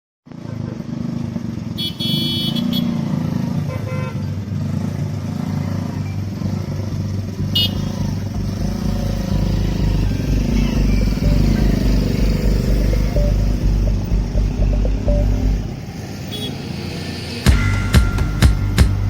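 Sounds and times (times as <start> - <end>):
road traffic engines: 0.3 - 19.0
horn beep: 1.8 - 3.0, 7.3 - 19.0.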